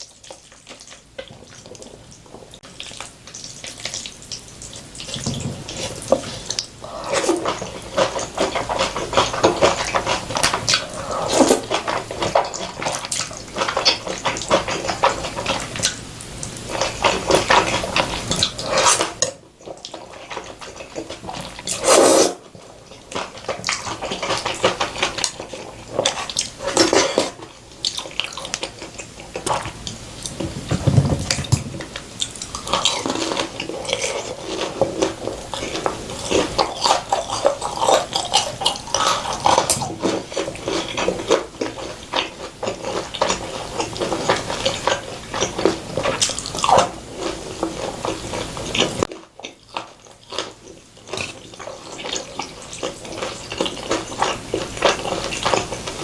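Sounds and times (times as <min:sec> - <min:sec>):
wet chewing and slurping: 0:00.0 - 0:56.0.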